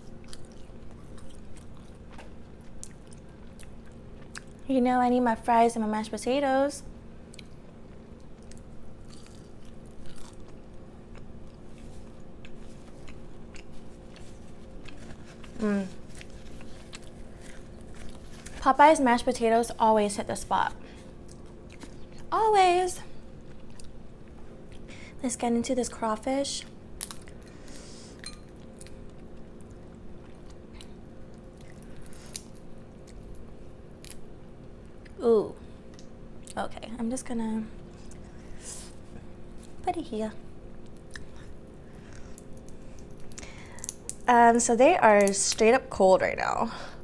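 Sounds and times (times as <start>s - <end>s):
person chewing food: 0.0s - 4.6s, 7.2s - 18.6s, 20.8s - 22.3s, 23.2s - 24.9s, 27.0s - 35.2s, 40.7s - 44.3s
steady low hum: 0.0s - 47.0s
small crunches: 7.3s - 18.9s, 28.8s - 34.2s
crawfish shells cracking: 40.8s - 44.3s.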